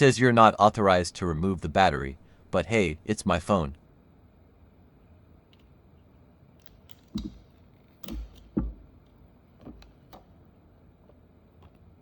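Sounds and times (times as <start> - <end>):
small tools and plastic parts knocking: 6.7 - 10.3.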